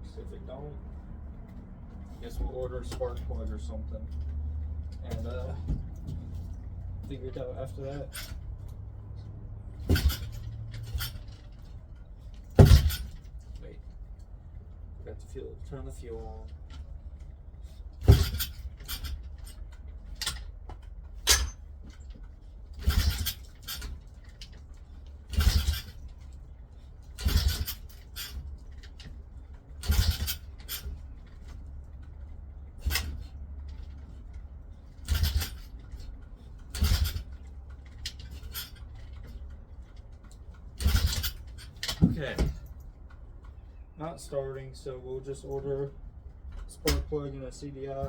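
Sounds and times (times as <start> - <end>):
engine cranking without starting: 21.2 - 24.5, 25.2 - 26.3, 27.0 - 29.2, 29.8 - 32.2, 34.9 - 39.6.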